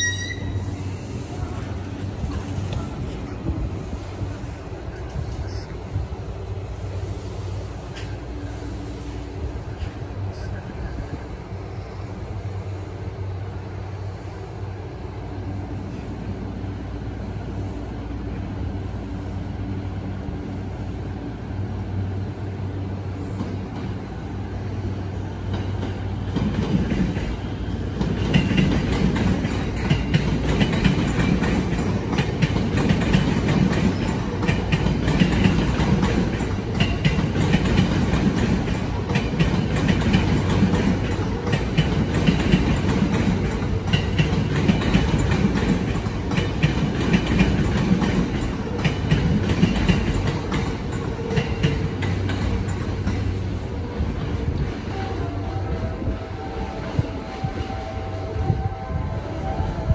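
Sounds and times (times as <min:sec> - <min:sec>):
passing train rail rumble: 0:00.0 - 0:59.9
stopped electric train humming: 0:00.0 - 0:59.9.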